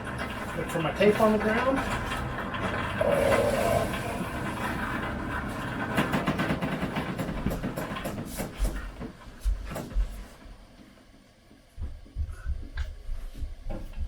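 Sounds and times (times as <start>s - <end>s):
water rushing through pipes: 2.6s - 5.6s
knocks and clatters: 4.6s - 10.0s.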